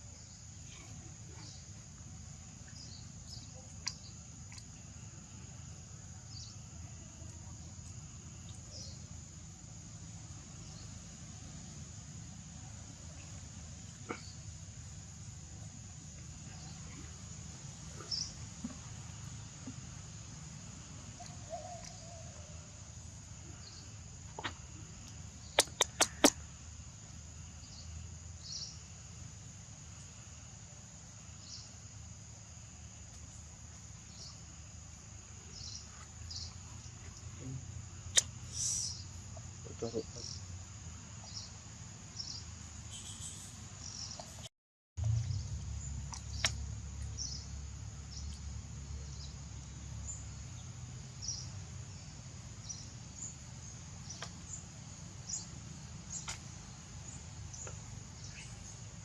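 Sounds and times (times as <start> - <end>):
high insect drone: 1.5 - 44.5
sharp clicks: 25.6 - 26.4
low rumble: 45.0 - 48.0.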